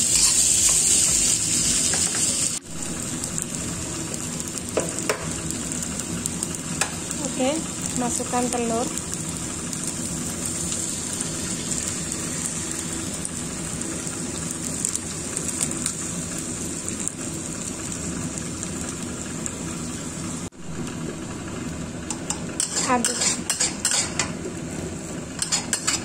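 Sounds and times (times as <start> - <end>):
food sizzling in a wok: 0.0 - 26.0
small oil crackles: 5.5 - 20.2.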